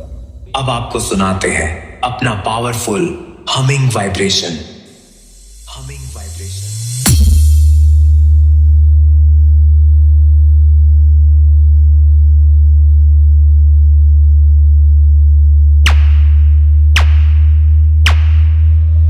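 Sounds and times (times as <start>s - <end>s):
deep bass hum: 0.0s - 2.0s, 4.9s - 19.0s
sharp hits: 15.9s - 19.0s.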